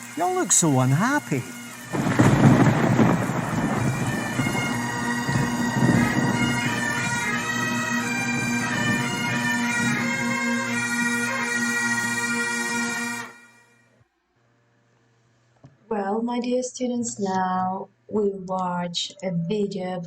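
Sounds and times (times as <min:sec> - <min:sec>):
bagpipe tune over drone: 0:00.0 - 0:13.8
rain pattering: 0:00.2 - 0:09.6.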